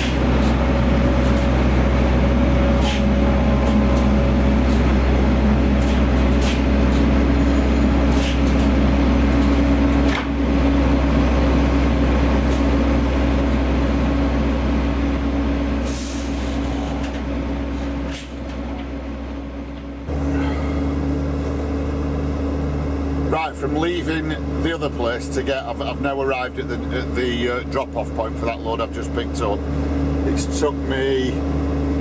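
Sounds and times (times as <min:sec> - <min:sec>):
truck diesel engine running: 0:00.0 - 0:32.0
short hiss of air: 0:15.8 - 0:16.7.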